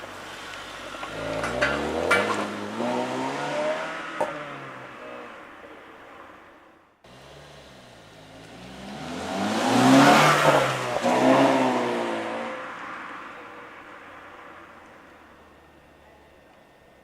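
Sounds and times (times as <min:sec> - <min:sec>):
car accelerating past: 0:00.9 - 0:05.4, 0:07.3 - 0:13.8.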